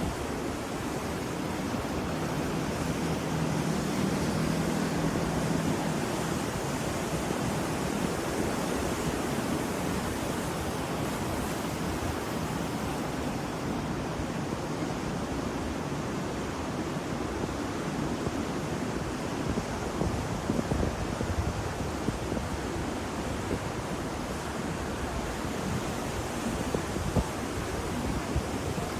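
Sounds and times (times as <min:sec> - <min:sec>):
waves breaking: 0:00.0 - 0:28.9
wind on microphone: 0:17.9 - 0:28.9.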